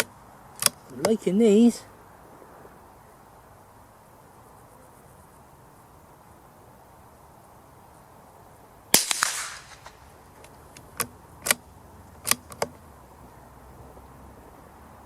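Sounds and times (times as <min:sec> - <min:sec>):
sharp metallic clicks: 0:00.0 - 0:01.3, 0:08.9 - 0:12.8
rifle shot with echo: 0:08.9 - 0:10.2.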